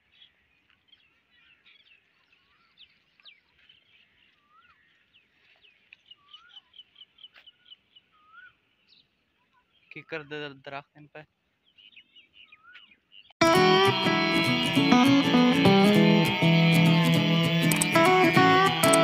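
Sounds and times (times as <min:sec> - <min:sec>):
songbirds chirping: 0:00.0 - 0:19.0
bird repeated notes: 0:13.4 - 0:19.0.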